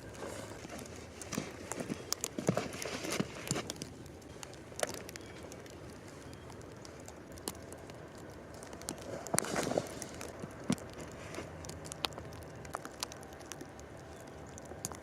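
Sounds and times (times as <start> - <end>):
sticks snapping and knocking: 0.0 - 15.0.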